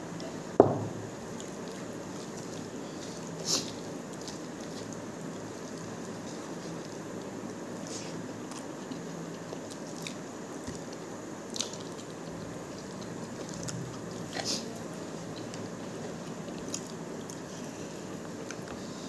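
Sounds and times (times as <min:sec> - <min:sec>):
background hiss: 0:00.0 - 0:13.5
man chewing food: 0:01.1 - 0:19.0.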